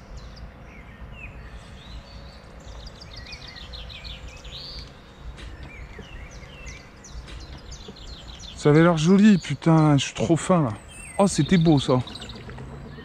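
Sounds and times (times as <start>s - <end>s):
low steady rumble: 0.0s - 13.0s
small birds singing: 0.0s - 13.0s.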